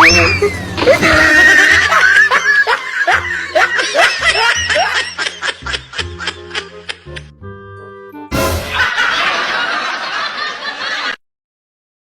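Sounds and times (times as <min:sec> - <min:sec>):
person laughing: 0:00.2 - 0:07.3.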